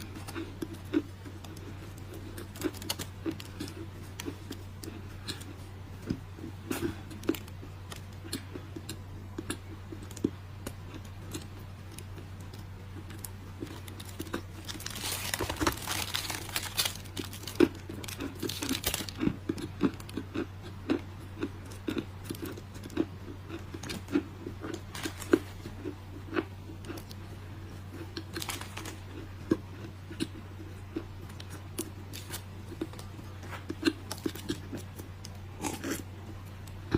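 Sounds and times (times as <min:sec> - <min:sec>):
steady low hum: 0:00.0 - 0:36.9
dry clay crunching: 0:13.0 - 0:21.0.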